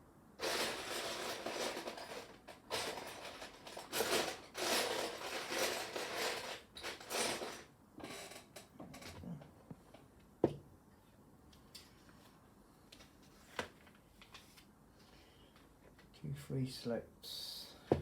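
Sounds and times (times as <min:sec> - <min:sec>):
hand rummaging plastic bricks: 0:00.4 - 0:07.6.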